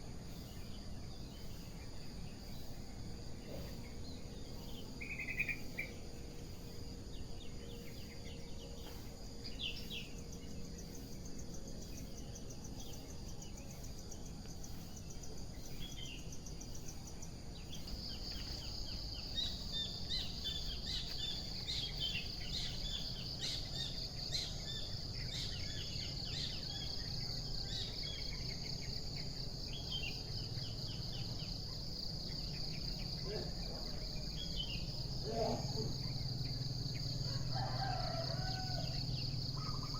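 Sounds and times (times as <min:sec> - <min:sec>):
insect high trill: 0:00.0 - 0:39.9
bird chirps and calls: 0:05.0 - 0:06.0.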